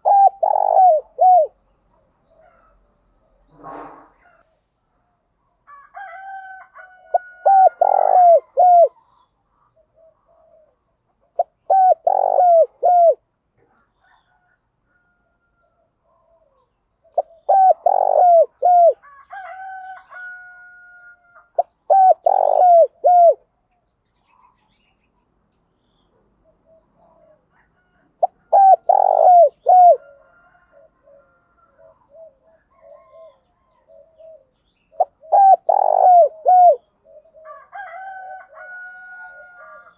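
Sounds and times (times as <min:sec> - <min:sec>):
dove cooing: 0:00.0 - 0:01.6, 0:07.0 - 0:09.0, 0:09.8 - 0:13.2, 0:16.2 - 0:20.3, 0:21.4 - 0:23.5, 0:26.4 - 0:39.9.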